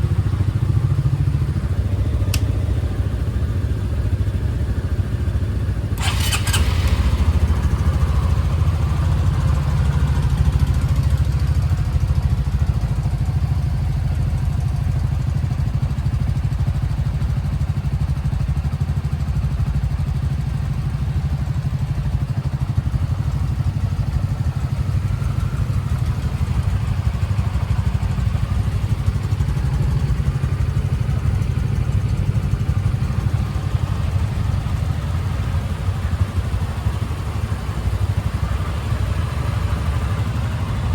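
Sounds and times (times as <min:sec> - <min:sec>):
motorcycle engine idling: 0:00.0 - 0:40.9
sharp clicks: 0:02.2 - 0:02.9.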